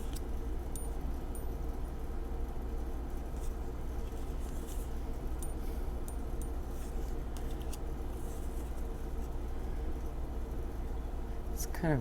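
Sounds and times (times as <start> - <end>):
steady low hum: 0.0 - 12.0
cards sliding and tapping: 6.7 - 9.4.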